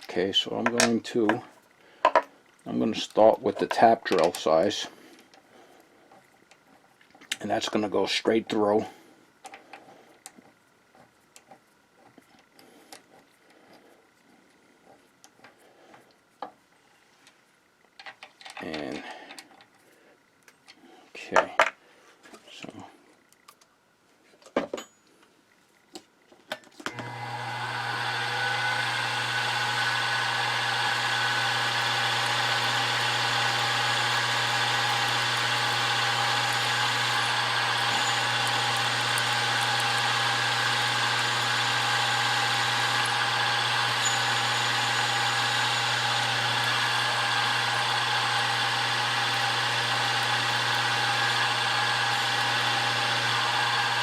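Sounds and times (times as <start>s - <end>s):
drill drilling through metal: 26.9s - 54.0s
milling machine spindle motor humming: 26.9s - 54.0s.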